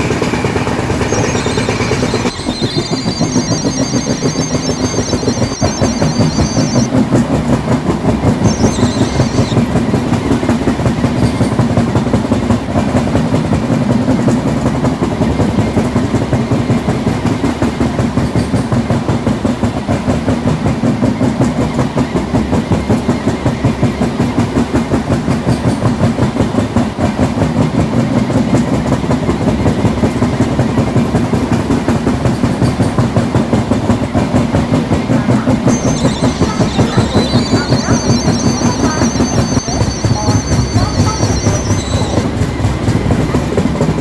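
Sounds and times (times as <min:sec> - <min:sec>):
high wheel squeal: 0:00.0 - 0:06.9, 0:08.4 - 0:09.7, 0:35.0 - 0:42.6.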